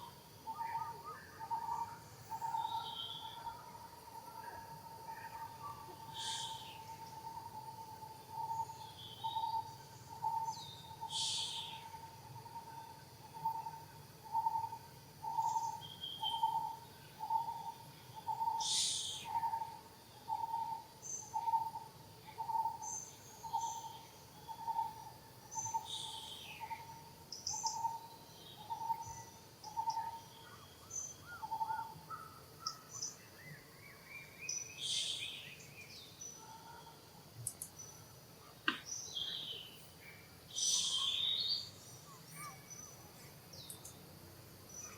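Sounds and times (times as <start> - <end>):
birds chirping: 22.3 - 44.9.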